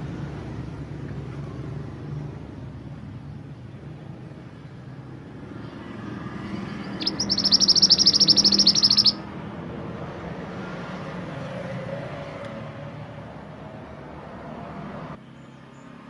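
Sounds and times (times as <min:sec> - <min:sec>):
bird high rapid trill: 0:06.6 - 0:09.3.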